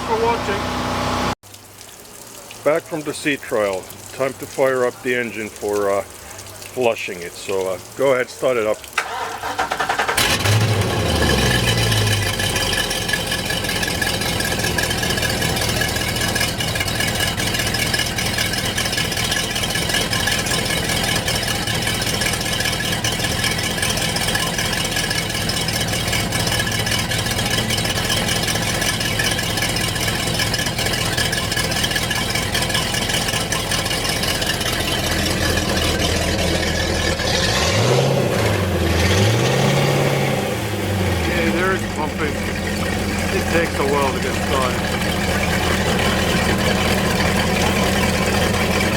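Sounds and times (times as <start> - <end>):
boat engine starting and idling: 0.0 - 1.4, 2.7 - 48.9
engine revving: 0.0 - 1.4, 9.0 - 16.6, 33.3 - 48.9.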